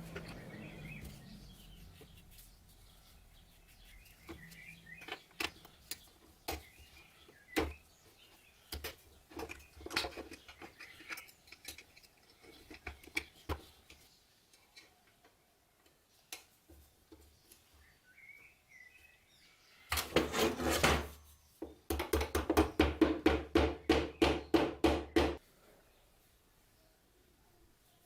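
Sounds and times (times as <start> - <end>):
scraping strokes by hand: 0.0 - 6.1.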